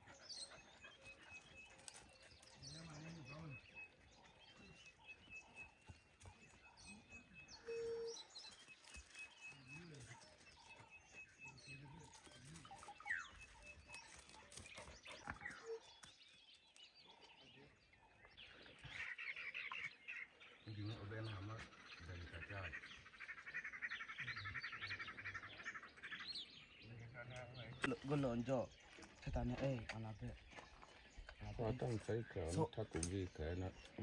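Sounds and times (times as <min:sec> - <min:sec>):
chattering bird calls: 0:00.0 - 0:16.5, 0:17.1 - 0:34.0
whistled bird calls: 0:04.6 - 0:11.9.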